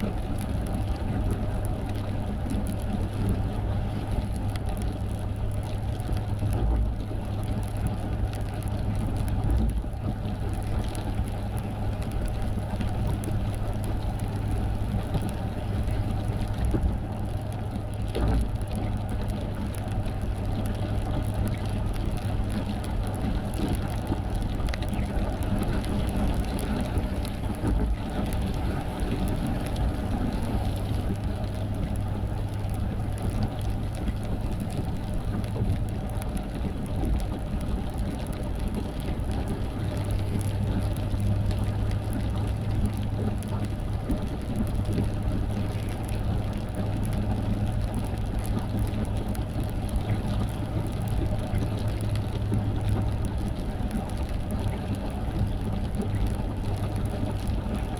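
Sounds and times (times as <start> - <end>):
tyre and road noise: 4.3 - 57.9
car engine hum: 9.8 - 54.3.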